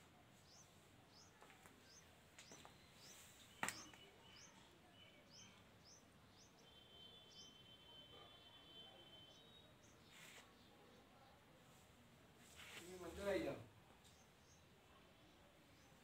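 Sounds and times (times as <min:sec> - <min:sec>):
small bird chirping: 0:00.4 - 0:07.8.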